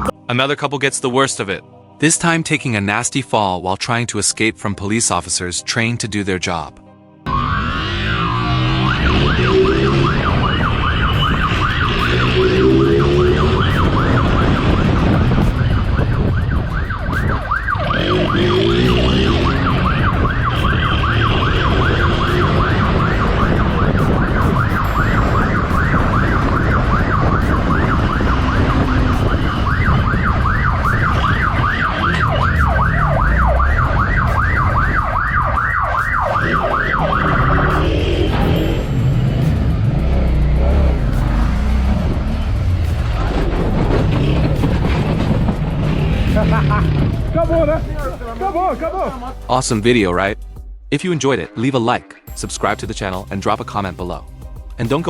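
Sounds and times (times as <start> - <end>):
engine and road rumble: 0.0 - 0.2, 7.2 - 50.9, 52.4 - 55.0
police siren yelping: 7.3 - 39.9.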